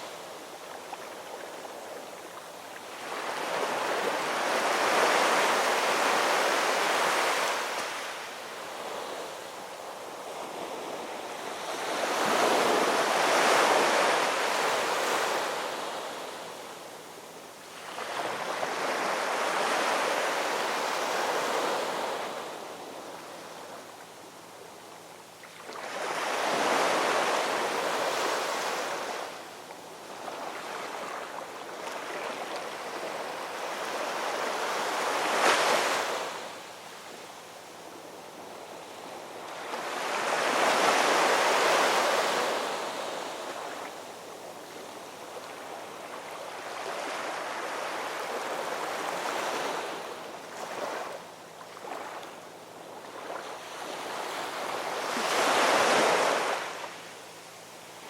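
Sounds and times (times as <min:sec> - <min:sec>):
waves breaking on shore: 0:00.0 - 0:16.8, 0:30.0 - 0:37.3, 0:38.5 - 0:57.2.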